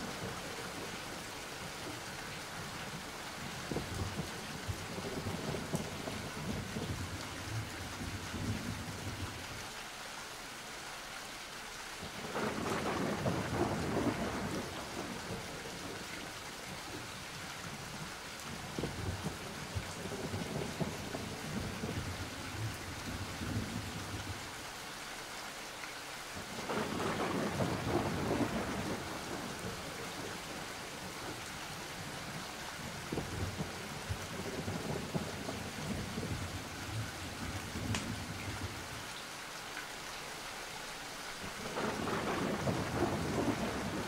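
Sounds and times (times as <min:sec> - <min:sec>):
steady rain: 0:00.0 - 0:44.0
thunder rolling: 0:12.2 - 0:16.0, 0:18.8 - 0:24.4, 0:26.6 - 0:30.4, 0:33.0 - 0:38.8, 0:41.6 - 0:44.0.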